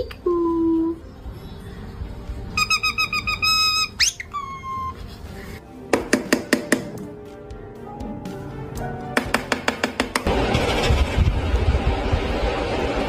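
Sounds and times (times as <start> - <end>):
quiet background music: 0.0 - 10.3
parrot chirping and whistling: 2.5 - 5.0.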